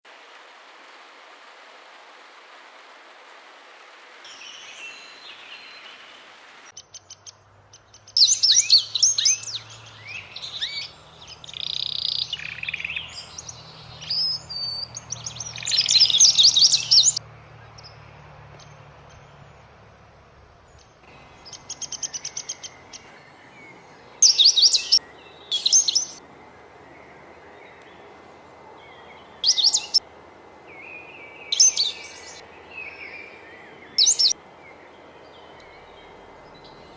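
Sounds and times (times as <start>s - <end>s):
steady outdoor hiss: 0.0s - 36.9s
birds chirping and singing: 6.8s - 18.0s, 20.7s - 26.2s, 28.7s - 30.0s, 30.8s - 36.9s.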